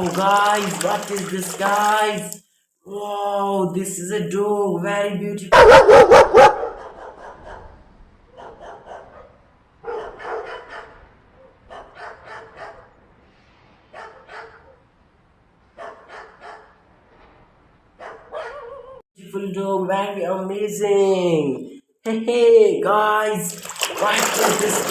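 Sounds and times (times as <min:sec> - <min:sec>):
dog barking: 0:05.5 - 0:13.0, 0:13.9 - 0:14.8, 0:15.8 - 0:16.8, 0:18.0 - 0:19.0.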